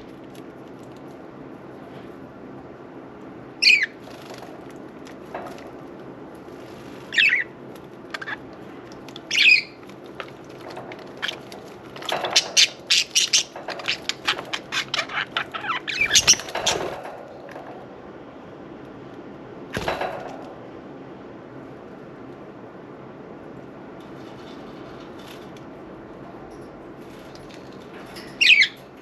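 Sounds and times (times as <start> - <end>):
wings fluttering: 3.6 - 17.7
budgerigars chirping: 7.1 - 7.5, 9.3 - 9.8, 12.3 - 16.8.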